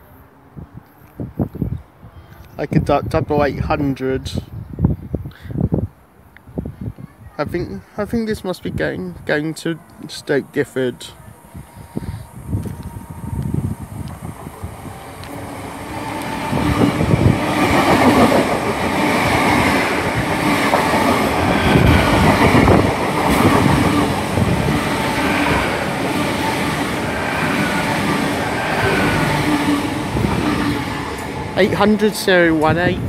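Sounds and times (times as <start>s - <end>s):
train hum: 9.2s - 33.0s
train wheels rumbling on rail: 11.6s - 33.0s.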